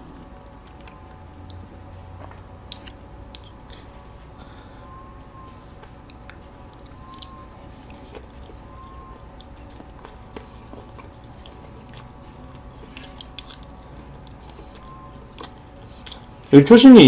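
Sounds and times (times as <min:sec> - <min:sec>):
chewing cake: 0:00.0 - 0:16.6
faint steady hum: 0:00.0 - 0:17.0
mouth clicks and smacks: 0:05.8 - 0:16.4.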